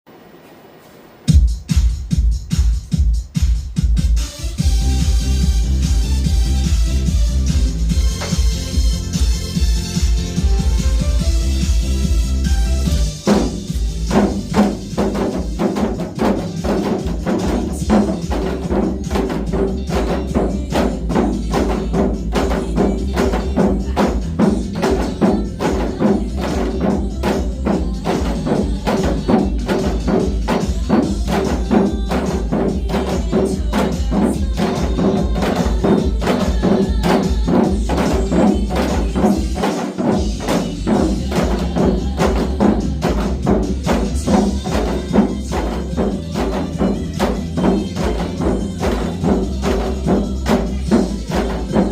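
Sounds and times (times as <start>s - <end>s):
pop backing track: 1.3s - 51.9s.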